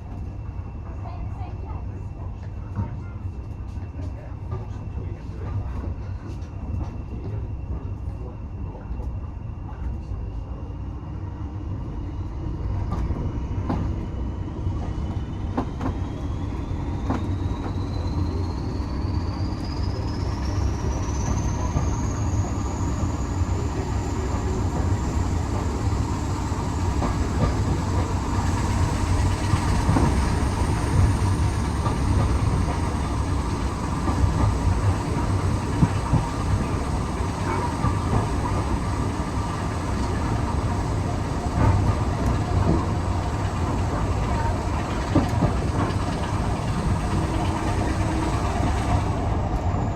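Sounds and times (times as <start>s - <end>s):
railway carriage rumbling: 0.0s - 49.9s
rail clicks: 19.3s - 49.9s.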